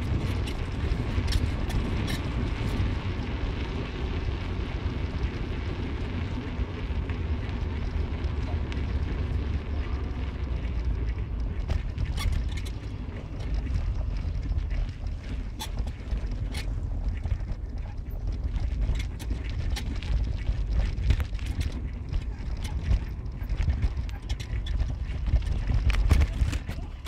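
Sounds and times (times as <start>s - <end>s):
car road and engine rumble: 0.0s - 27.0s
light clicks and rattles: 7.4s - 27.0s.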